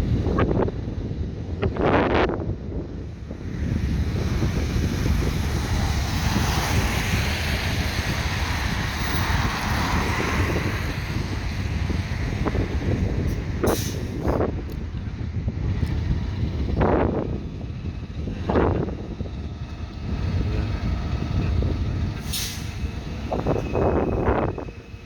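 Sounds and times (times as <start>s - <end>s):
hissing wind gusts: 0.0s - 25.0s
wind rumble on microphone: 0.0s - 25.0s
vehicle passing: 3.8s - 13.6s, 16.0s - 25.0s.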